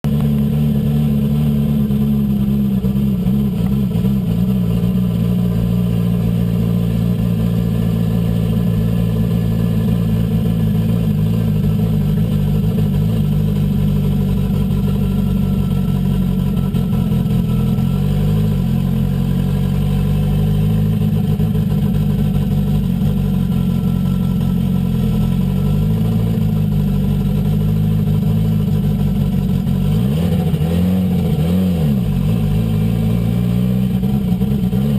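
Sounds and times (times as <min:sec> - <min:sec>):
car engine running at low revs: 0:00.0 - 0:34.9.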